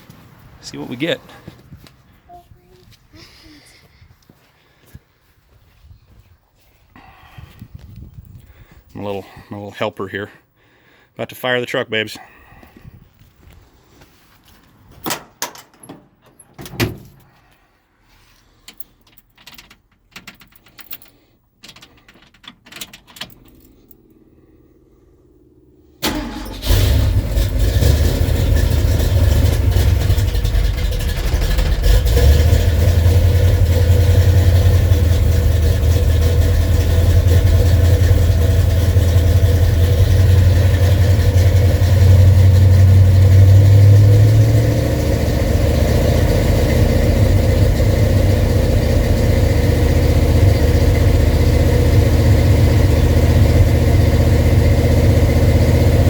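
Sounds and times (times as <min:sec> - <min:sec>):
car engine fast idle: 0:26.0 - 0:56.0.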